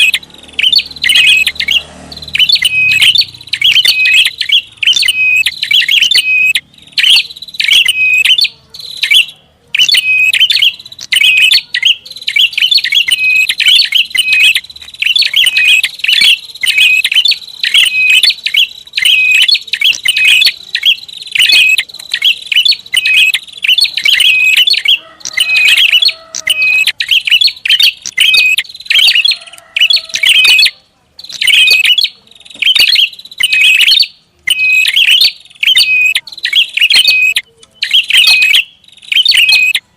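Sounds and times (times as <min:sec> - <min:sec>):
bird high-pitched chattering: 0:00.0 - 0:39.9.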